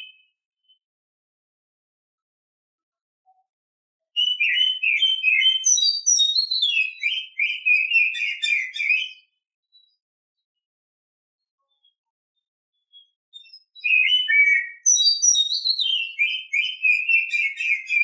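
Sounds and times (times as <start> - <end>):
bird song whistles and chatter: 0.0 - 0.8, 4.2 - 10.0, 12.8 - 18.0.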